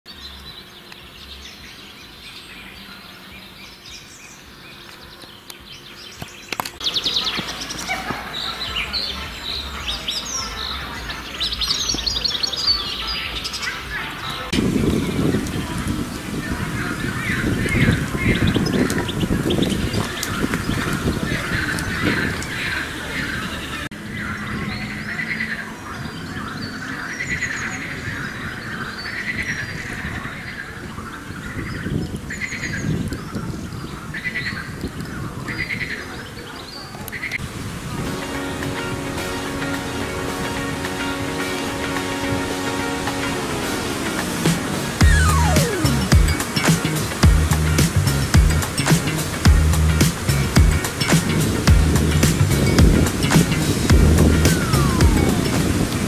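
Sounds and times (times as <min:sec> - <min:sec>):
songbirds singing and chirping: 0:00.1 - 0:56.0
pulsing bird calls: 0:39.3 - 0:56.0.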